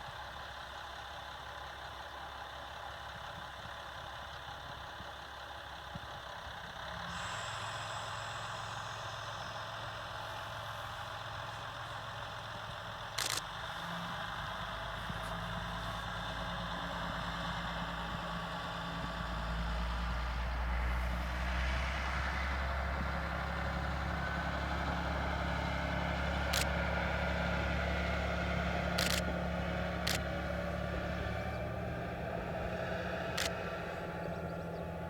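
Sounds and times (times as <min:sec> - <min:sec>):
diesel railcar engine humming: 0:00.0 - 0:35.0
sharp clicks: 0:13.2 - 0:13.4, 0:29.0 - 0:29.4, 0:30.0 - 0:30.3, 0:33.4 - 0:33.6.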